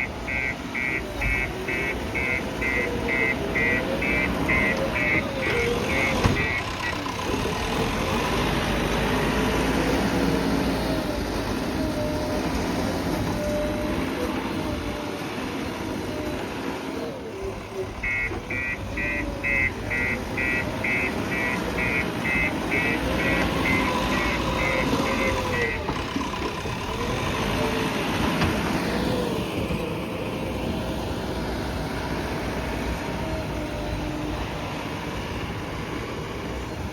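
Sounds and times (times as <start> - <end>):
reversing alarm beeping: 0.0 - 7.0, 18.0 - 25.9
diesel engine running: 0.0 - 36.9.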